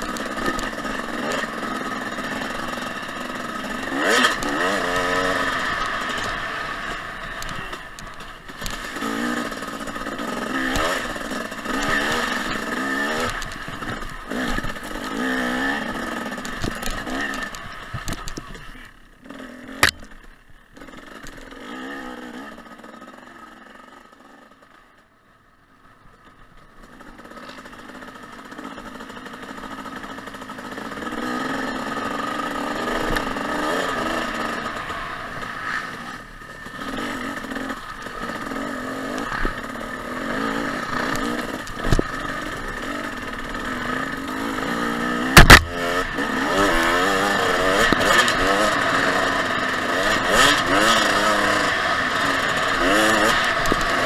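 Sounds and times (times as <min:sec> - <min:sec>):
dirt bike engine revving: 0:00.0 - 0:24.6, 0:26.9 - 0:54.0
sharp knock: 0:45.4 - 0:45.8.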